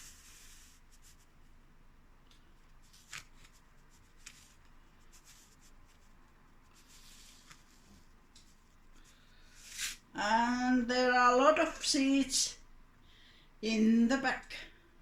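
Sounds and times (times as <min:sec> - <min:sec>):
paper seed packet rustling: 0:02.7 - 0:10.0.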